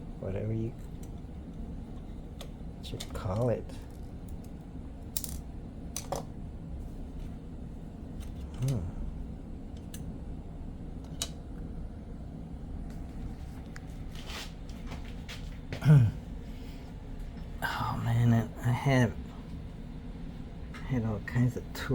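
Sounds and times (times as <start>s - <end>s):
low steady hum: 0.0s - 21.9s
tools and parts clicking: 2.4s - 5.4s, 6.0s - 6.3s.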